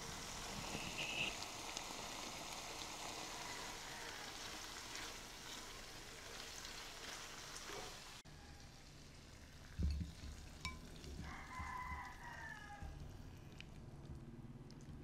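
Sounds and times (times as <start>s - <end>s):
food sizzling in frying pan: 0.0s - 8.2s.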